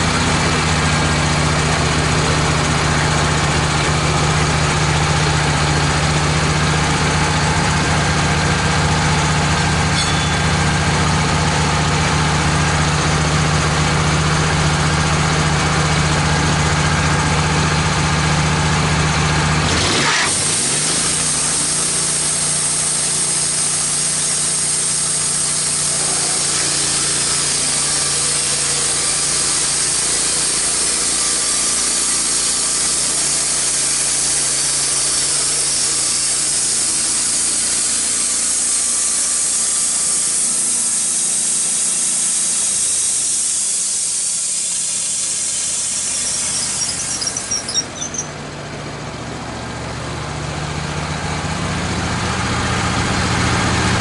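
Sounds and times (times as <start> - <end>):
sawmill engine running: 0.0 - 54.0
band saw blade cutting log: 9.1 - 12.2, 19.6 - 42.6, 44.8 - 48.4
saw blade squeal: 9.3 - 11.3, 19.8 - 42.1, 43.5 - 48.4.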